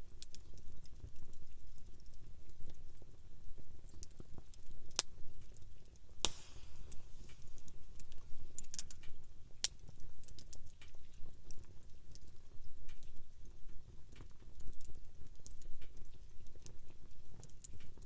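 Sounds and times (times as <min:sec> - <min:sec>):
low rumble of burning fire: 0:00.0 - 0:18.0
campfire crackling and popping: 0:06.2 - 0:10.7.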